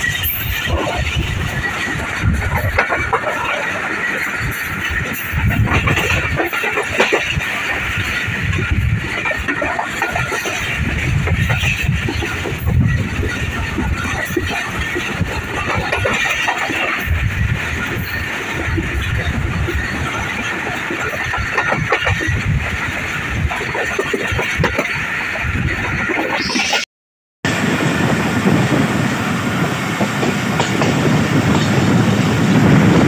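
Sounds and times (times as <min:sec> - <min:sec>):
train wheels on rails: 0:00.0 - 0:26.8, 0:27.5 - 0:33.0
rushing air: 0:27.5 - 0:33.0.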